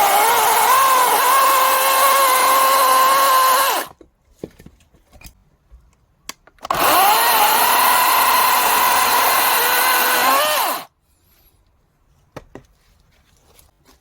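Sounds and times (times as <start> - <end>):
chainsaw whining: 0.0 - 3.9, 6.7 - 10.9.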